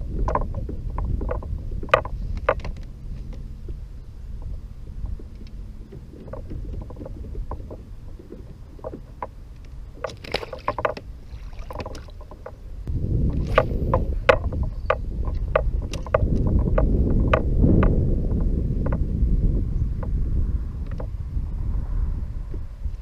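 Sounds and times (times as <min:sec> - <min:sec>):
wind rumbling on microphone: 0:00.0 - 0:23.0
small clicks and knocks: 0:00.2 - 0:03.4, 0:08.8 - 0:12.6, 0:13.3 - 0:17.9.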